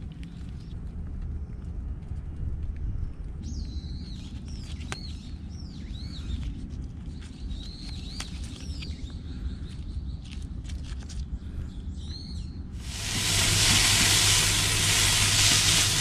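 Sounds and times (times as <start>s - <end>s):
steady low rumble: 12.8s - 16.0s.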